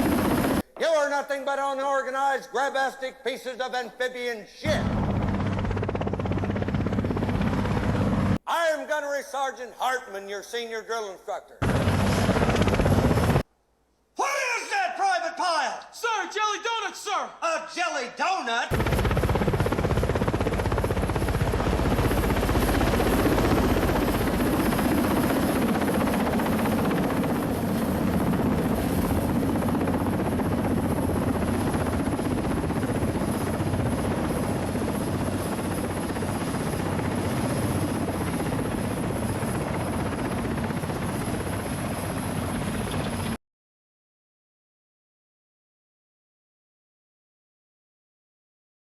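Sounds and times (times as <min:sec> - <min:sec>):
helicopter rotor and engine: 0:00.0 - 0:00.6, 0:04.7 - 0:08.4, 0:11.6 - 0:13.4, 0:18.7 - 0:43.4.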